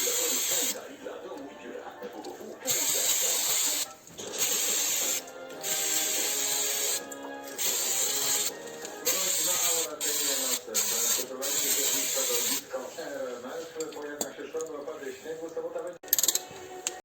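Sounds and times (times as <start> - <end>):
hissing spray bursts: 0.0 - 0.8, 2.7 - 12.6
music from a radio: 0.0 - 17.0.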